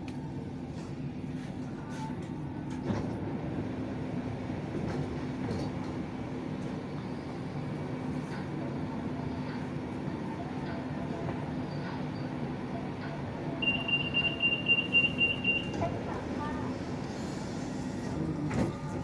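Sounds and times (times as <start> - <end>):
electric train rumbling: 0.0 - 19.0.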